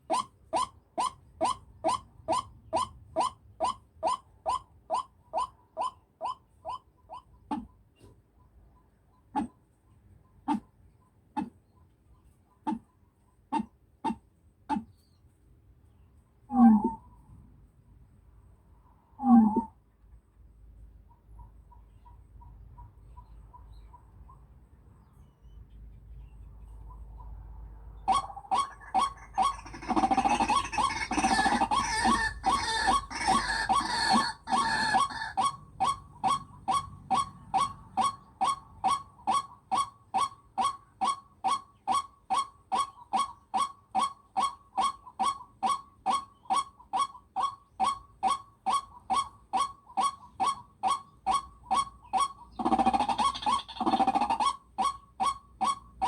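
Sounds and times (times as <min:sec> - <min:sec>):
bird-like call: 0:00.0 - 0:07.8, 0:28.0 - 0:56.0.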